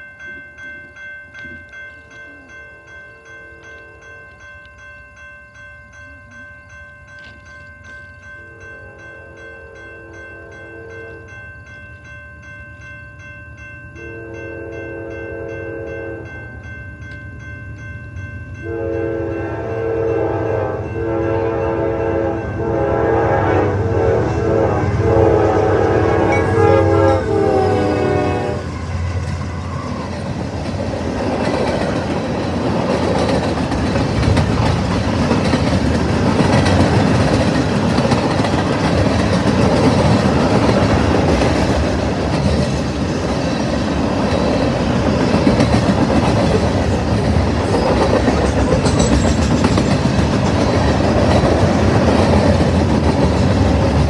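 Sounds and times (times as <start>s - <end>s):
freight train horn: 8.5s - 11.4s, 14.0s - 16.3s, 18.6s - 30.1s
freight cars rolling past: 23.8s - 54.0s
wheel clickety-clack: 29.2s - 54.0s.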